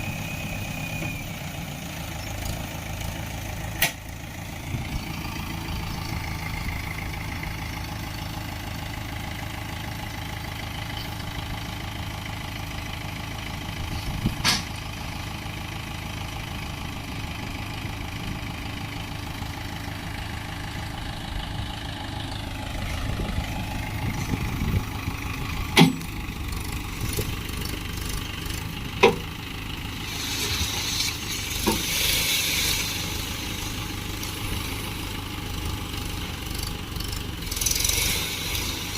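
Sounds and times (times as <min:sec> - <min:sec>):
diesel tractor engine idling: 0:00.0 - 0:38.9
hiss: 0:29.9 - 0:35.2, 0:37.5 - 0:38.9.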